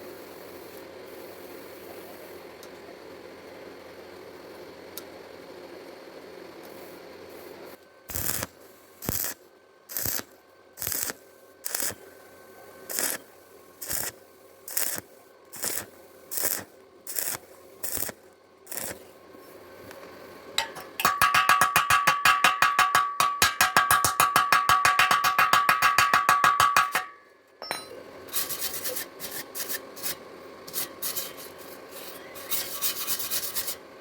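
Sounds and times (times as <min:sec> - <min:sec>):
scraping on metal: 0:28.3 - 0:33.8.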